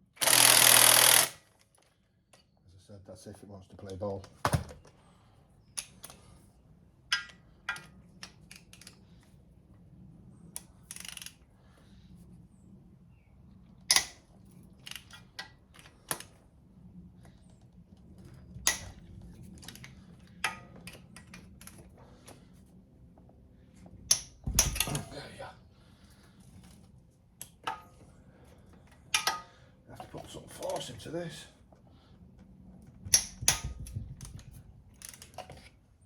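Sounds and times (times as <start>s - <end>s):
hand tools clicking on metal bolts: 28.9s - 30.9s.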